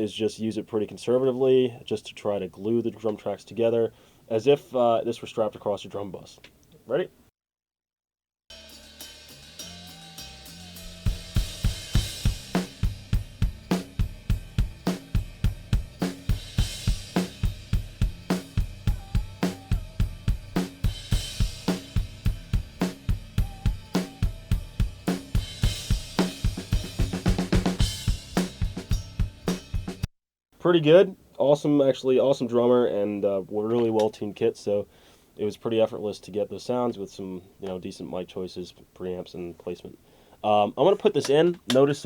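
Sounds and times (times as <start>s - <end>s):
rock drum kit beat: 8.5s - 30.1s.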